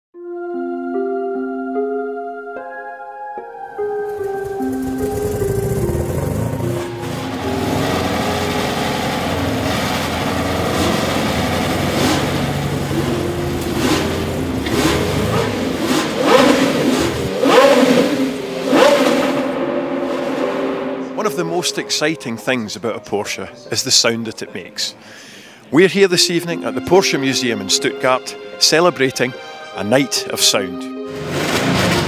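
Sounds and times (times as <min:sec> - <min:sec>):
background music with held notes: 0:00.2 - 0:32.0
car engines revving: 0:04.1 - 0:21.3.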